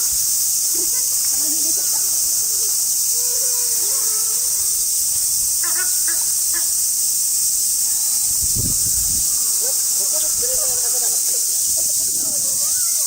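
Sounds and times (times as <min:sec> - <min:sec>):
insect chorus hissing: 0:00.0 - 0:13.0.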